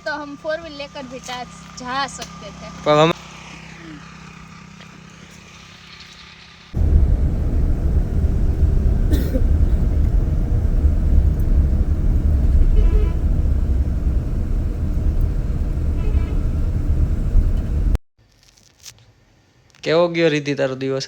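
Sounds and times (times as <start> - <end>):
wind rumble buffeting microphone: 6.8 - 18.0.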